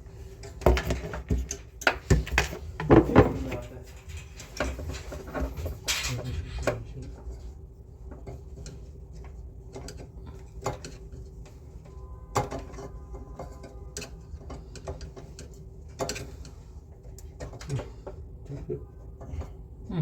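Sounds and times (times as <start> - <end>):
sharp clicks and light knocks: 8.0 - 18.2.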